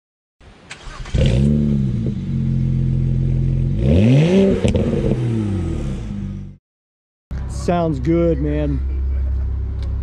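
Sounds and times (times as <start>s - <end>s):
car engine starting and idling: 0.4s - 6.6s, 7.3s - 10.0s.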